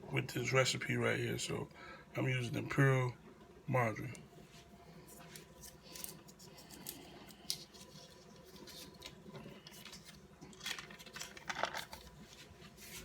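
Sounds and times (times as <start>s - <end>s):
clicks and rustles of handling: 5.0s - 13.0s.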